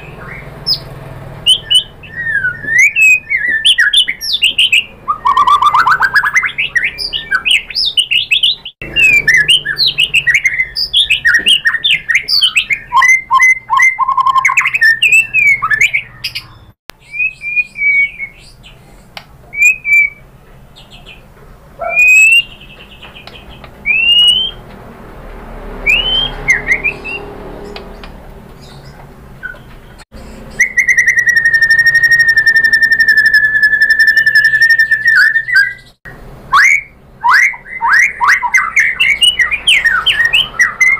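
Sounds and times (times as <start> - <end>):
bird singing whistled phrases: 0.0 - 18.7, 19.5 - 20.2, 21.8 - 22.7, 23.8 - 24.6, 25.9 - 27.3, 30.3 - 40.9.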